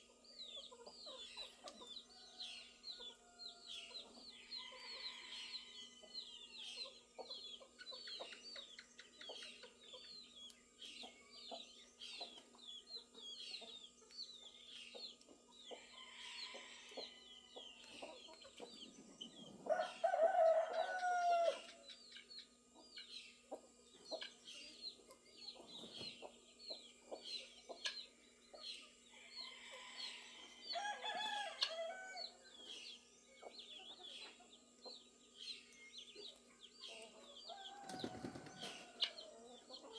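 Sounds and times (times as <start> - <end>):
chickens clucking: 0.0 - 39.9
small birds chirping: 0.0 - 39.9
rooster crowing: 19.7 - 21.7, 29.3 - 32.4, 37.5 - 39.1.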